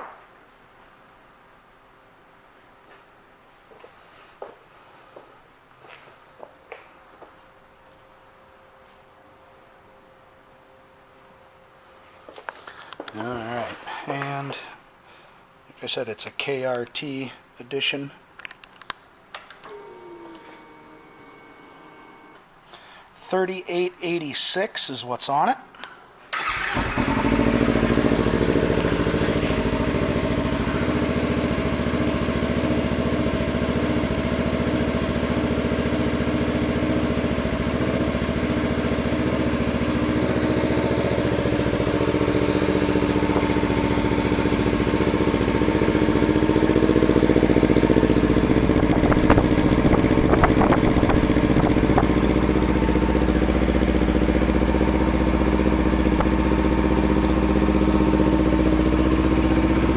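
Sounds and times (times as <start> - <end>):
motorcycle engine idling: 26.4 - 59.9.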